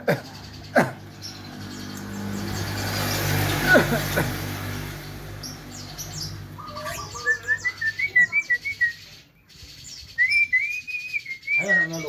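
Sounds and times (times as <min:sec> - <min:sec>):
bird chirping whistles: 0:06.2 - 0:12.0.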